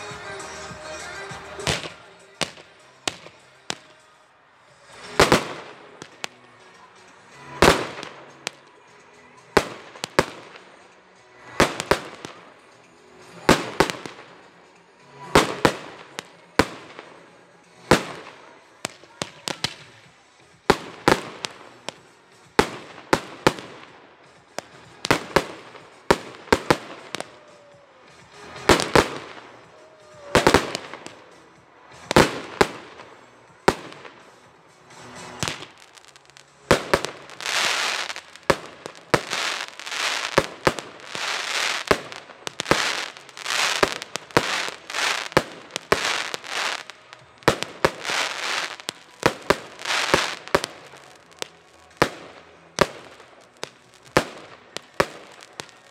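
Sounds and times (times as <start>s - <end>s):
crackling firework bursts: 1.5s - 4.0s, 4.6s - 8.7s, 9.4s - 55.9s
fireworks bangs: 1.6s - 4.0s, 4.8s - 6.3s, 24.6s - 55.9s.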